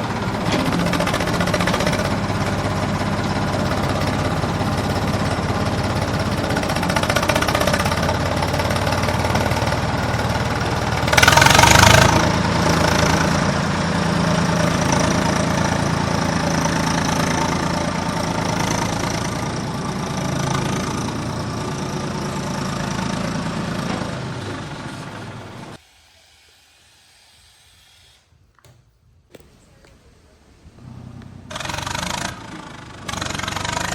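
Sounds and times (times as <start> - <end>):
simulated tractor engine: 0.0 - 25.8, 30.4 - 33.9
loud hissing burst: 25.8 - 28.6.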